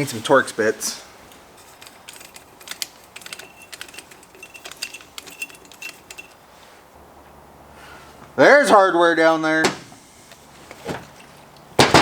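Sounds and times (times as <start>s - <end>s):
metal bits clicking and clinking: 1.6s - 6.4s.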